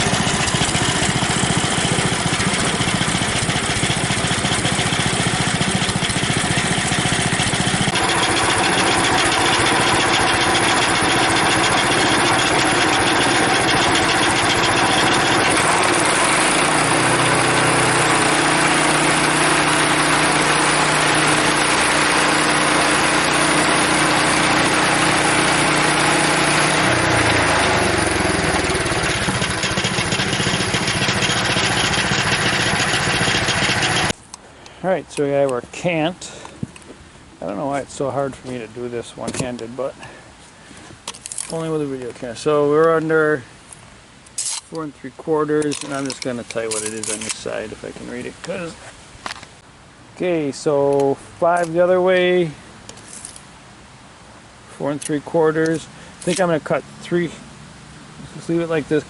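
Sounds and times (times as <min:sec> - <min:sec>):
sawmill engine and blade sawing log: 0:00.0 - 0:34.2, 0:46.2 - 0:48.6.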